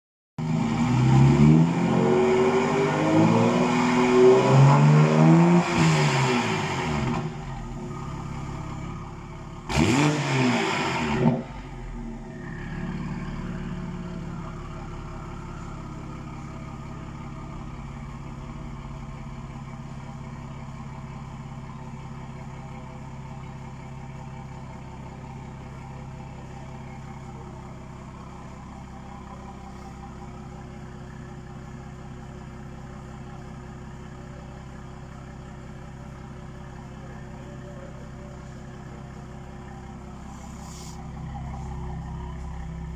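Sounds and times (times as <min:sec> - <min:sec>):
car engine revving and idling: 0:00.4 - 0:42.9.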